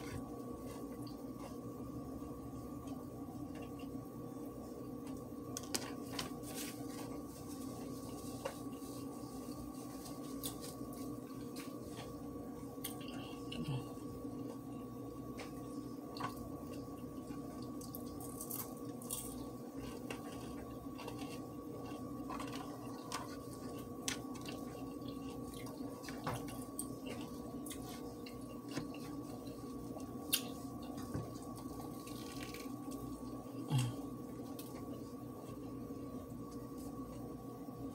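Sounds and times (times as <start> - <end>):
steady hum: 0.0 - 37.9
person chewing: 16.2 - 33.1.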